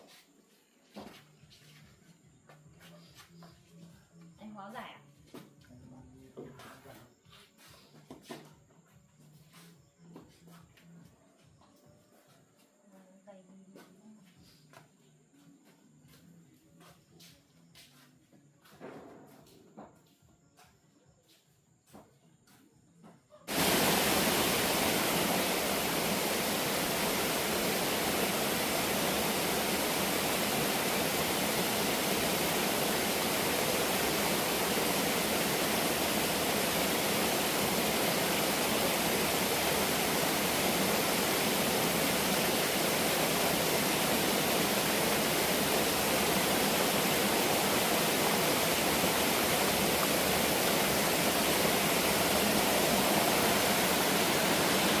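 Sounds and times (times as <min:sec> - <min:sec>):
waterfall roaring: 0:23.5 - 0:55.0.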